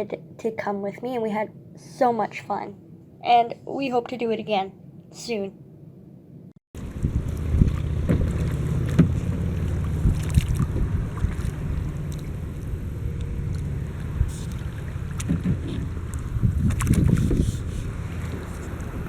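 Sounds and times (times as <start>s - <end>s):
wind buffeting microphone: 6.8s - 19.0s.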